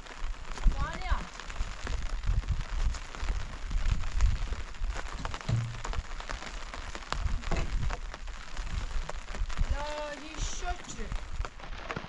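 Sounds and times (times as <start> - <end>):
rain falling: 0.0 - 12.0
raindrops ticking on surfaces: 0.0 - 12.0.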